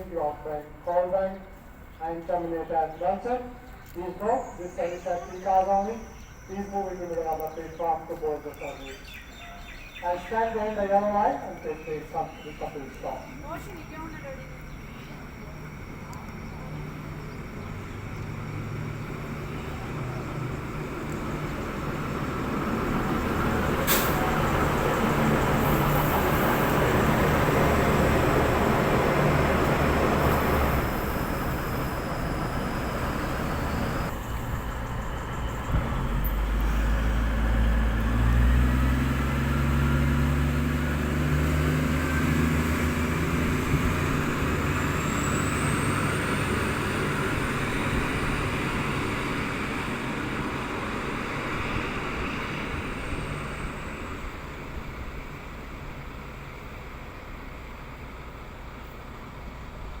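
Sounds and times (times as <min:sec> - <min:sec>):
diesel train engines: 0:00.0 - 1:00.0.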